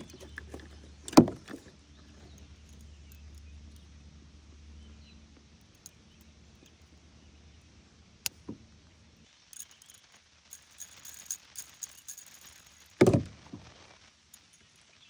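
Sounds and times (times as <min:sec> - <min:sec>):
small objects clicking and rattling: 0:00.0 - 0:03.4, 0:09.5 - 0:13.8, 0:14.4 - 0:14.9
loud thump: 0:13.0 - 0:13.7.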